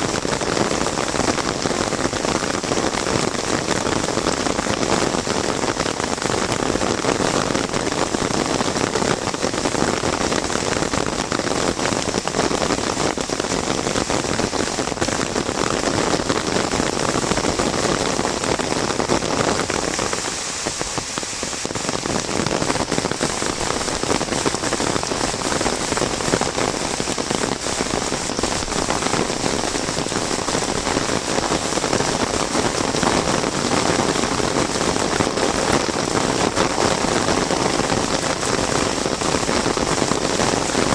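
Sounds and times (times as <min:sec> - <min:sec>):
heavy rain on an umbrella: 0:00.0 - 0:40.9.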